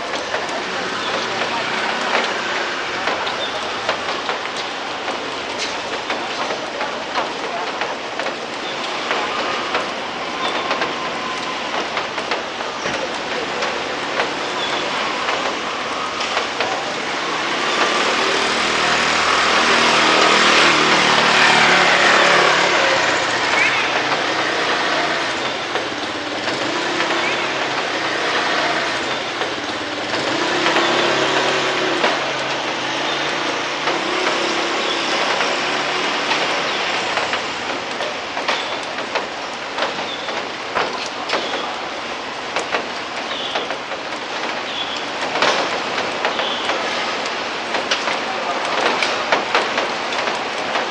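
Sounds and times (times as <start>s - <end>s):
steady rain hiss: 0.0s - 50.9s
sharp drip clicks: 0.1s - 50.9s
vehicle engine hum passing: 17.2s - 38.0s.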